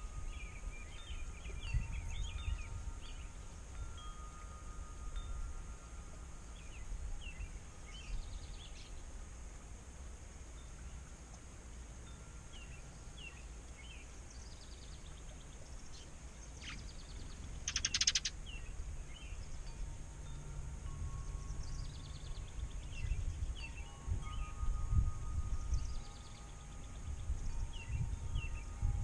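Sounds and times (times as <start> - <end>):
bird trill: 0.0 - 5.5, 12.5 - 19.9, 21.0 - 28.9
songbirds chirping: 0.0 - 29.0.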